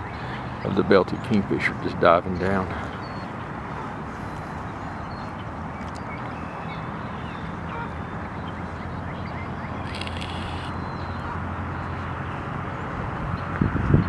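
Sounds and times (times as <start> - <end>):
distant highway traffic rumble: 0.0 - 14.0.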